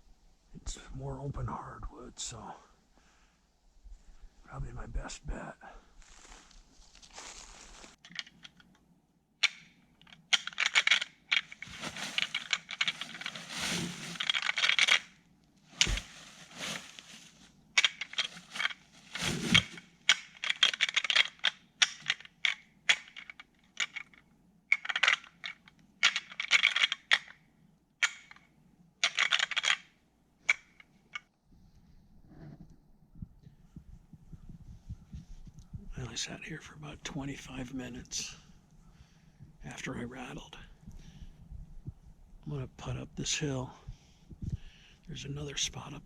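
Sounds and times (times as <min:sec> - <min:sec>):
antlers clacking and grinding: 0:10.2 - 0:15.1.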